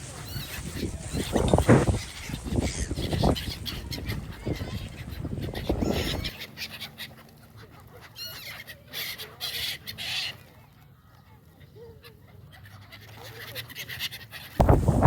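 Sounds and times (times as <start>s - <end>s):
waterfowl calling: 0.0s - 10.3s.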